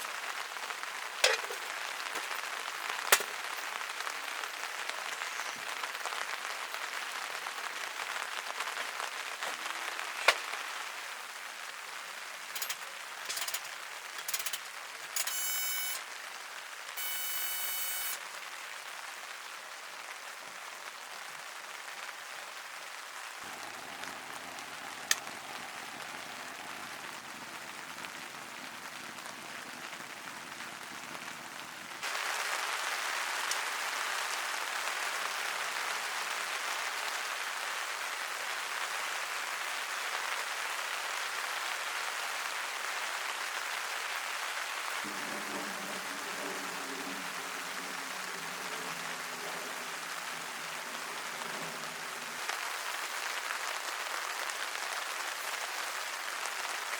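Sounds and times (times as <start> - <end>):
rain falling: 0.0 - 56.9
brief ringing tone: 15.2 - 16.0, 17.0 - 18.2.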